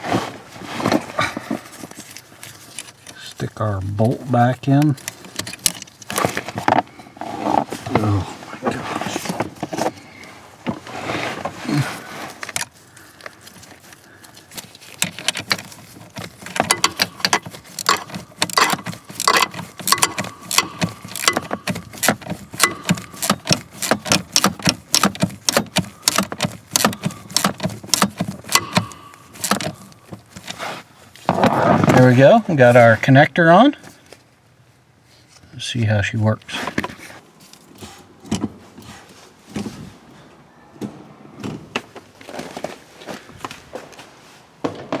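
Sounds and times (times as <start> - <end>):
hand tools clicking on metal: 4.8 - 6.2, 12.4 - 30.6.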